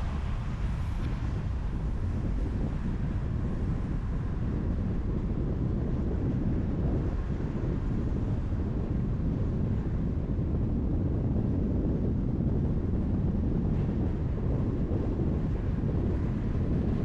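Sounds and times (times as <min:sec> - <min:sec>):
car road noise: 0:00.0 - 0:10.4.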